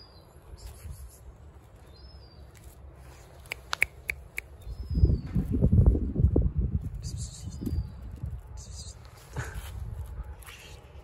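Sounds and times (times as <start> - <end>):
bird chirps: 1.8 - 5.4.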